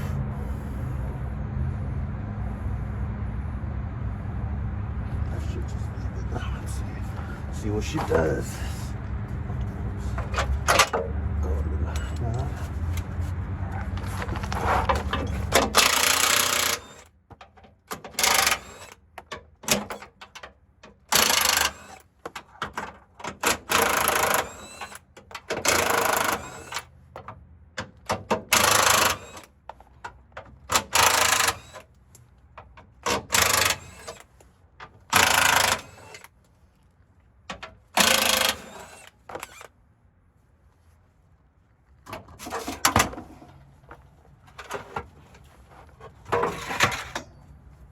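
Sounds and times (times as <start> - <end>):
power tool rattling: 14.0 - 17.1, 17.8 - 22.6, 23.3 - 26.9, 27.9 - 29.5, 30.6 - 31.9, 32.6 - 34.3, 35.0 - 36.3, 37.5 - 39.7.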